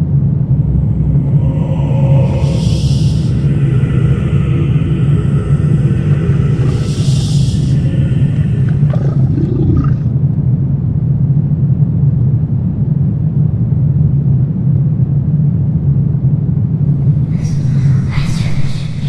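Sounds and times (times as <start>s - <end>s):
deep low rumbling drone: 0.0s - 19.0s.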